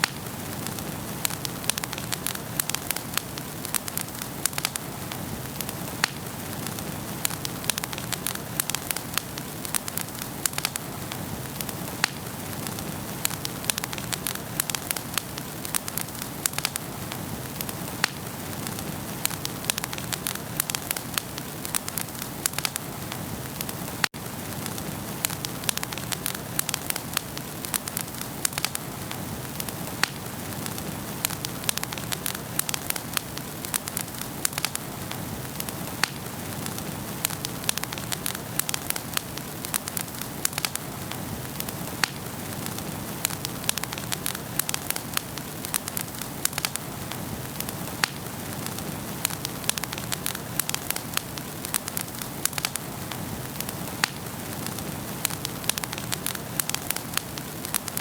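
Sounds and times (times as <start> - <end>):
burning logs crackling and popping: 0.0 - 58.0
hiss of flames: 0.0 - 58.0.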